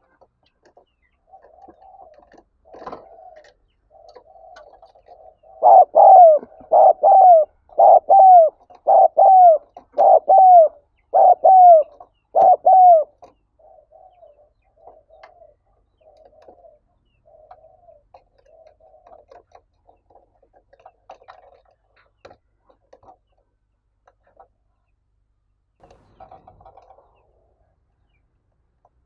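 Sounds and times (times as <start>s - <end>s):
dove cooing: 1.2s - 19.4s.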